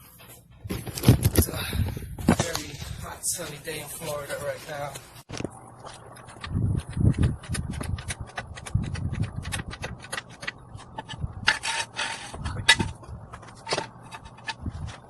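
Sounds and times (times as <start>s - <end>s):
floor jack scraping: 10.8s - 15.0s.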